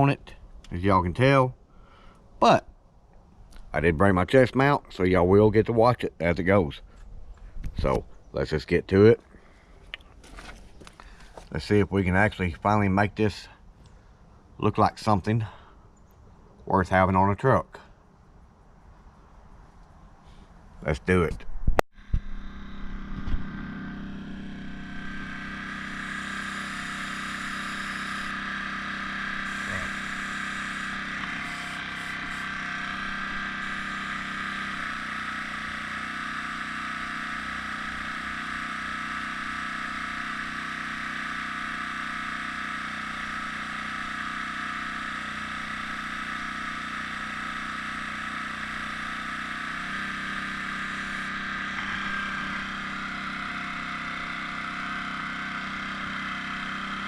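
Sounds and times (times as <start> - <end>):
air compressor running: 9.3 - 11.8, 22.0 - 57.0.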